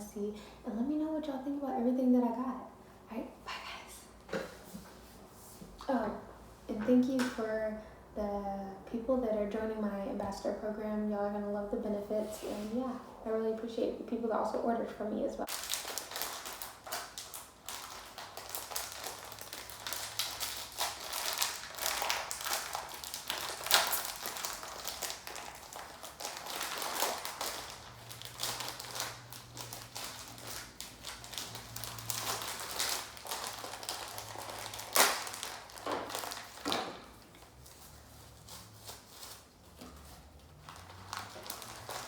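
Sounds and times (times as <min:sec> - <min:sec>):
objects rustling and clicking: 0:15.5 - 0:42.0.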